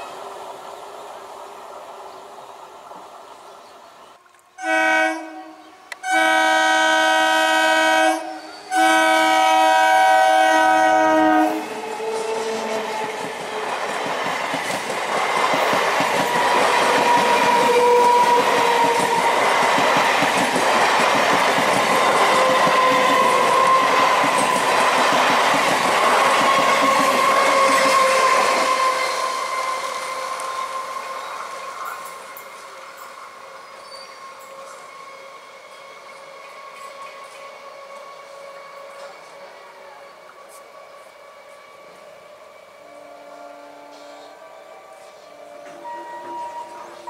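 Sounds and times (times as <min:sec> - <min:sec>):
steady train whine: 0:00.0 - 0:47.0
train horn blasts: 0:04.6 - 0:12.9, 0:17.0 - 0:19.4, 0:26.7 - 0:30.9, 0:42.7 - 0:47.0
train wheels rumbling with clickety-clack: 0:08.3 - 0:42.4.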